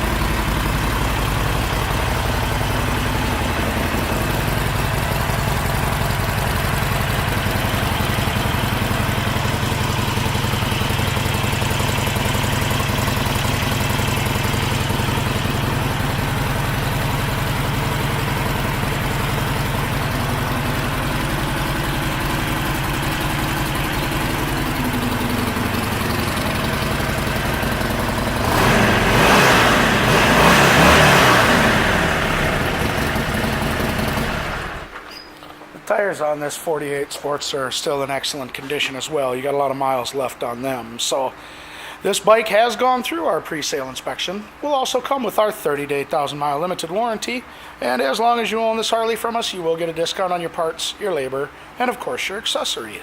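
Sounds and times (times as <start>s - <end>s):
motorcycle engine idling: 0.0s - 35.3s.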